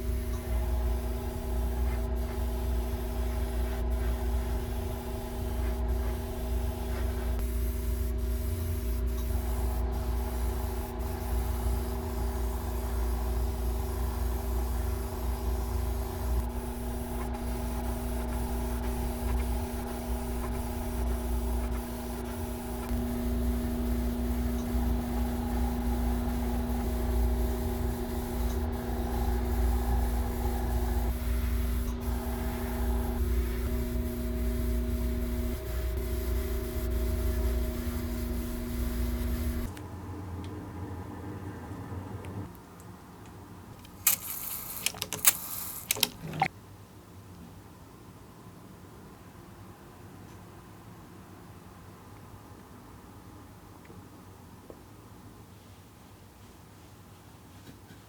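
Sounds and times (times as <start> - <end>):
airbrush spraying: 0.0 - 39.8, 43.9 - 46.5
compressor motor humming: 0.0 - 39.8, 43.9 - 46.5.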